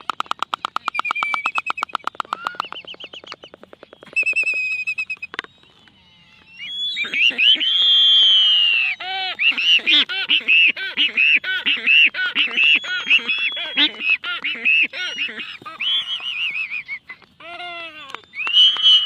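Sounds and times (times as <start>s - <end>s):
albatrosses honking calls: 7.0s - 7.8s, 8.6s - 19.0s.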